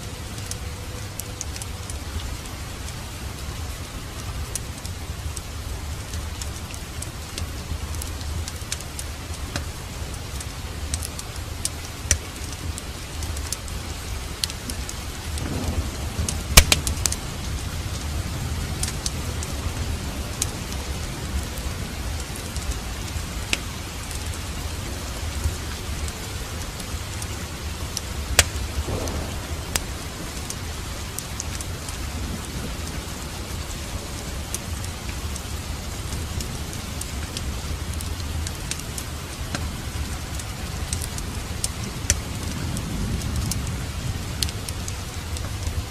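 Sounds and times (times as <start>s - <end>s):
steady rain falling: 0.0s - 45.9s
wood fire crackling and popping: 0.0s - 45.9s
low rumble: 12.6s - 35.8s.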